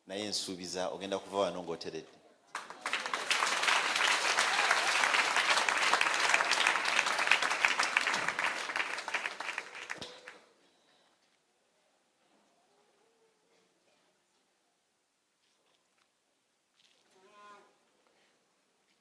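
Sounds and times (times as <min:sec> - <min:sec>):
audience applauding: 0:02.5 - 0:10.4.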